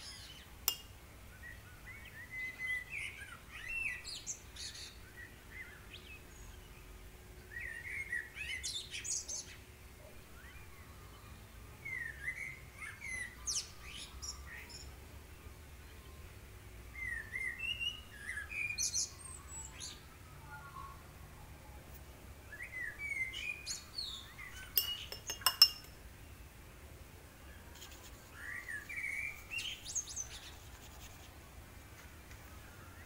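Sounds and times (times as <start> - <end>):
songbird chirping and whistling: 0.0 - 6.0, 7.5 - 9.6, 10.3 - 14.9, 16.9 - 21.1, 21.7 - 26.5, 27.6 - 30.7.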